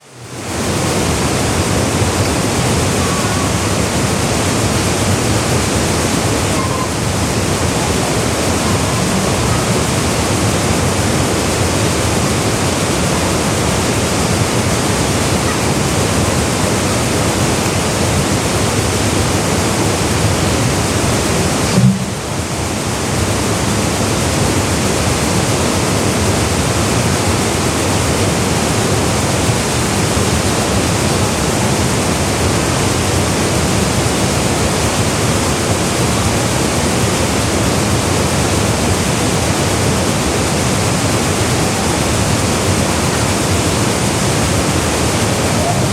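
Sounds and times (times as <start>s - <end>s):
waterfall rushing: 0.0s - 45.9s
low bump: 21.6s - 22.6s.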